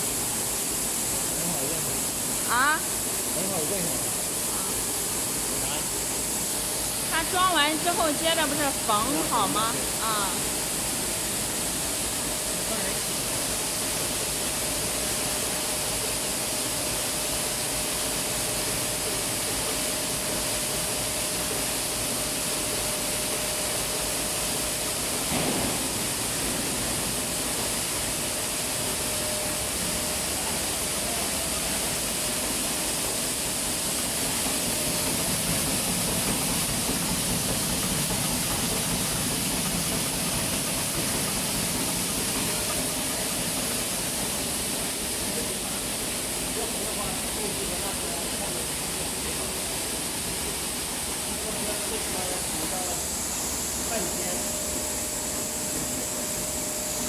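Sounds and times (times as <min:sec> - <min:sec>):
milling machinery running: 0:00.0 - 0:57.0
machine knock: 0:25.3 - 0:27.0.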